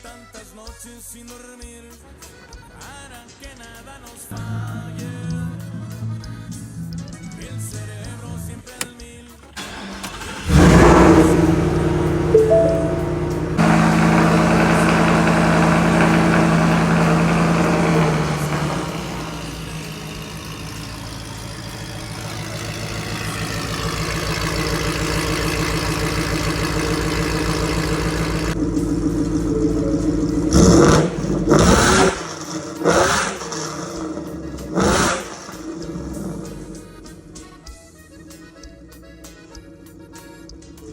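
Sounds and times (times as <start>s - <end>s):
engine idling: 4.3s - 8.8s, 9.5s - 40.9s
engine revving in quick blips: 9.6s - 37.6s.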